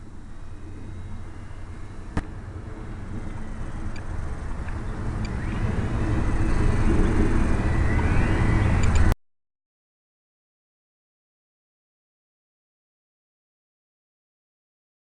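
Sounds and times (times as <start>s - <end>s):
car engine and road noise: 0.0s - 9.2s
thin rising whine: 0.0s - 9.2s
sharp click: 8.8s - 9.1s.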